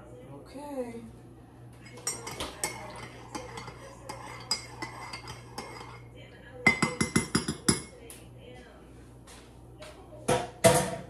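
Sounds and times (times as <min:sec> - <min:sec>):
cutlery clinking on plates: 0:01.8 - 0:07.9.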